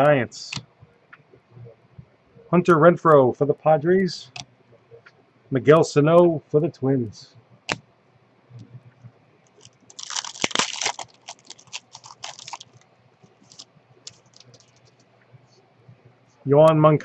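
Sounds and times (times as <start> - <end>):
cards clicking and rustling: 9.5 - 15.0
foil wrapper crinkling: 9.5 - 15.0.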